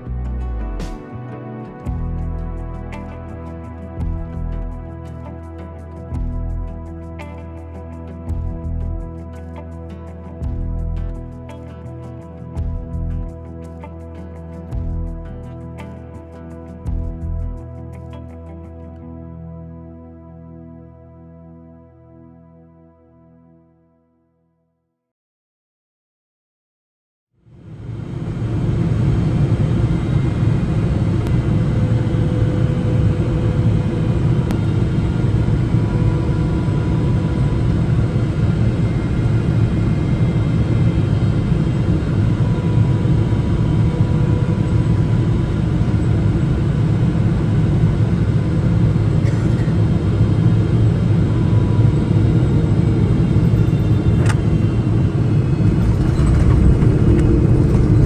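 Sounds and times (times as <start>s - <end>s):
airliner cabin rumble: 27.7s - 58.0s.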